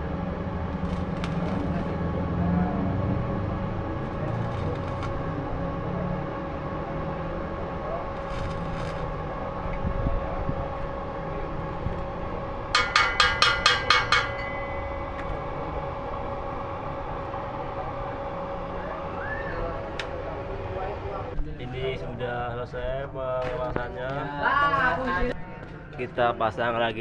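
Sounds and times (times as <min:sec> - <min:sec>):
steady machine hum: 0:00.0 - 0:27.0
ringing metal strikes: 0:12.7 - 0:17.6.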